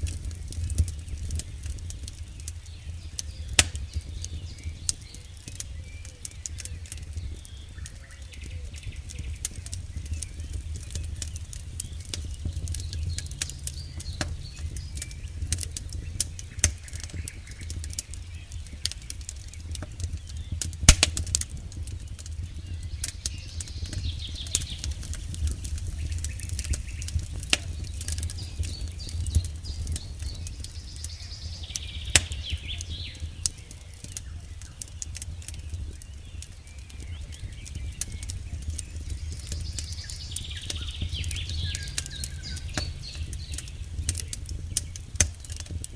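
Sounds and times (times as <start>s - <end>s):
campfire crackling and popping: 0.0s - 45.9s
steady low rumble: 0.0s - 45.9s.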